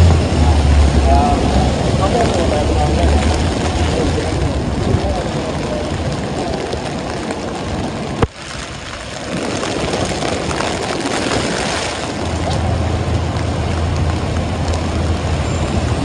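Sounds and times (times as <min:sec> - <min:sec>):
heavy rain: 0:00.0 - 0:16.0
street traffic: 0:00.0 - 0:16.0
low engine hum: 0:08.9 - 0:16.0.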